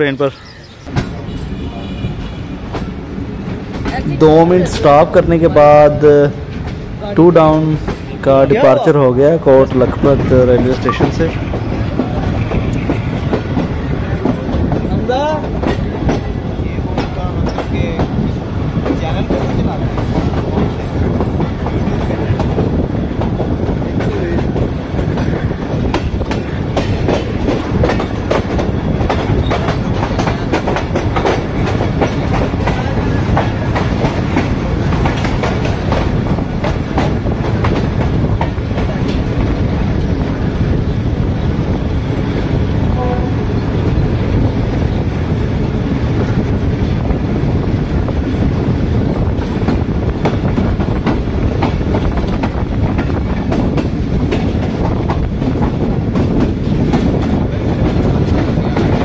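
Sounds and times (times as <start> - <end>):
train coaches rumbling: 0.0 - 59.0
wheels clicking over rail joints: 9.9 - 40.8.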